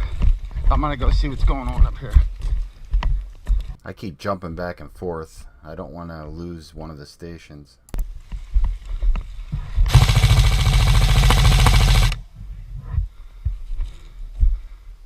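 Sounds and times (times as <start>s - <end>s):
knocks and rustling of movement: 0.0s - 3.8s
airsoft gun full-auto burst: 9.9s - 12.2s.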